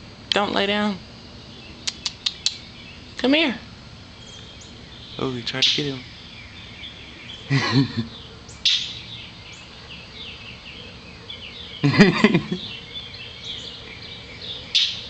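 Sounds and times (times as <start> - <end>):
bird chirping: 0.3 - 15.0
harsh bird call bursts: 4.7 - 7.5.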